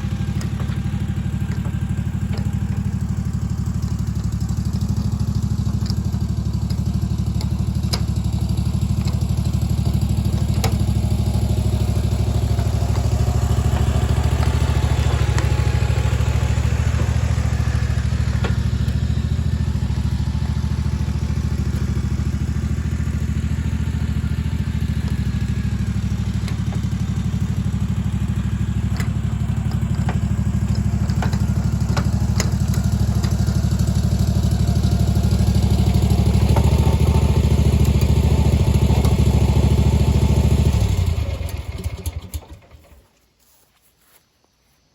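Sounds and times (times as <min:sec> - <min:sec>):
lawn mower engine running: 0:00.0 - 0:43.1
sharp knocks and clatter: 0:00.1 - 0:20.2, 0:28.2 - 0:34.2.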